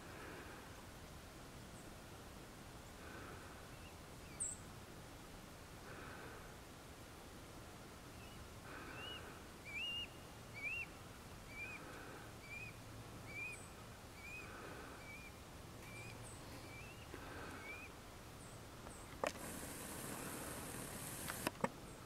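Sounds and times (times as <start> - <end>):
bird calling: 8.1 - 21.5.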